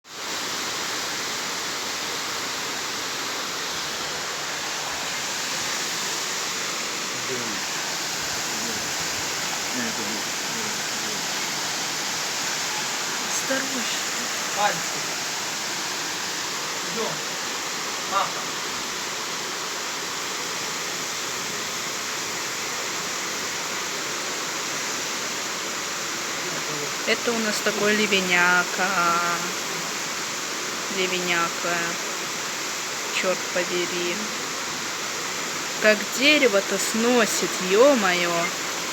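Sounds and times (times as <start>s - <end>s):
heavy rain falling: 0.1s - 38.9s.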